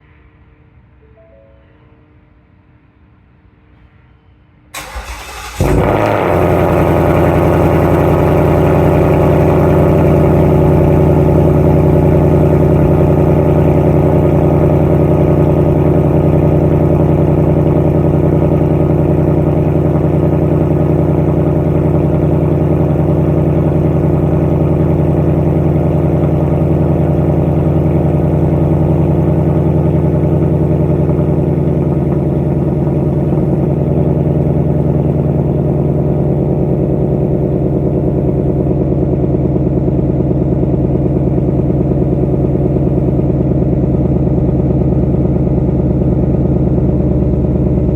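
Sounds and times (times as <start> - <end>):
car engine idling: 4.8 - 47.9.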